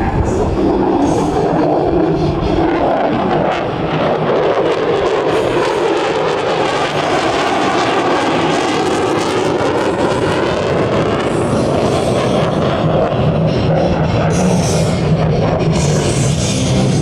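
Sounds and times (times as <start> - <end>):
jet flying past: 0.0 - 17.0.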